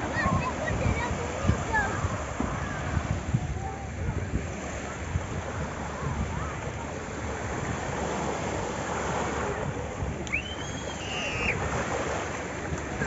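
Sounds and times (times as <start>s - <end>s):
sea water rushing: 0.0s - 13.0s
wind buffeting microphone: 0.0s - 13.0s.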